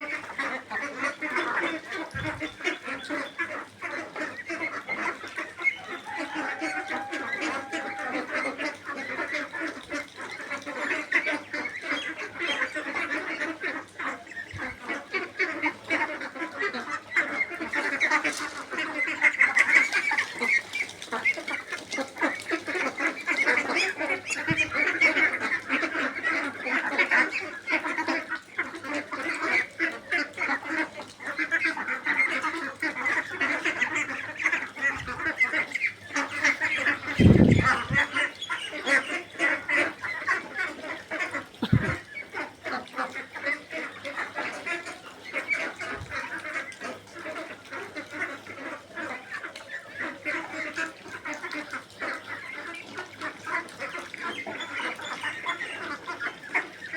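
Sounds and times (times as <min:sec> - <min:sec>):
ducks quacking: 0:00.0 - 0:56.9
dull low thumps: 0:41.6 - 0:42.0.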